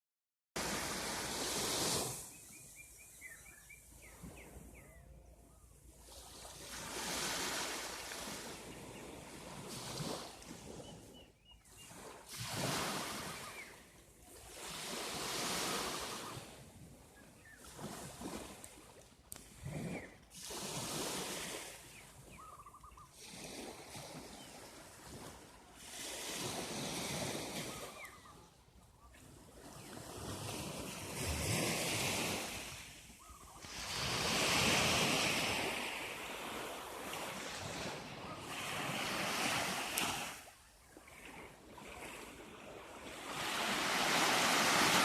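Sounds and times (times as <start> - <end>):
waves washing in: 0.6 - 3.3, 6.0 - 16.8, 17.4 - 22.3, 23.1 - 28.1, 29.6 - 45.0
bird calls: 2.2 - 5.8, 21.8 - 23.2, 27.6 - 30.0, 33.2 - 33.7.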